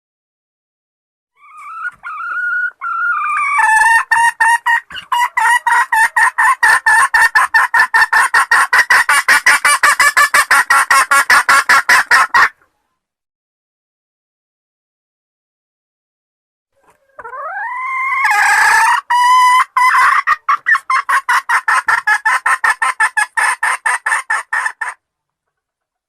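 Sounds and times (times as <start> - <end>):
chicken wavering call: 1.4 - 12.7, 16.8 - 25.0
chicken clucking: 1.4 - 13.0, 16.8 - 26.0.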